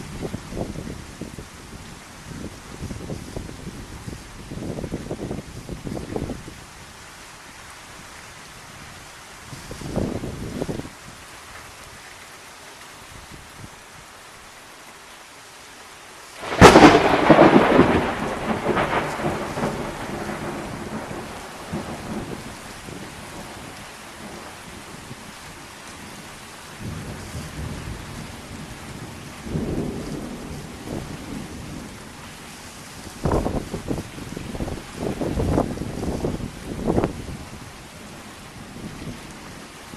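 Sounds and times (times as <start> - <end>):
steady rain: 0.0 - 39.9
thunder rumbling: 16.4 - 25.2, 26.8 - 32.2, 33.0 - 39.5.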